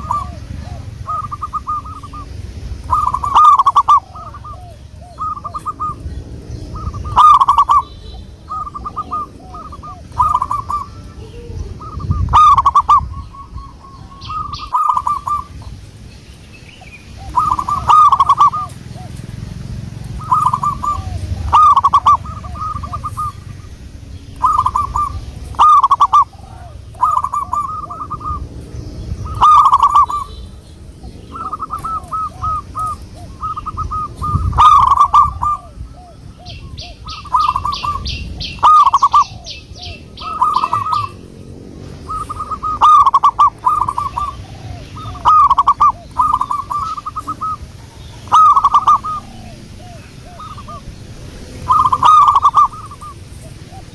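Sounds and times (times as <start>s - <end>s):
doves cooing: 0.0s - 53.9s.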